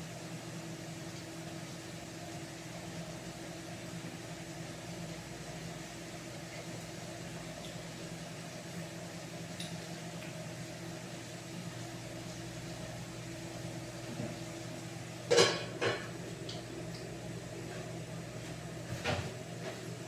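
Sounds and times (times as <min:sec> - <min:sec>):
low mechanical hum: 0:00.0 - 0:20.0
kitchenware clinking: 0:15.3 - 0:16.1.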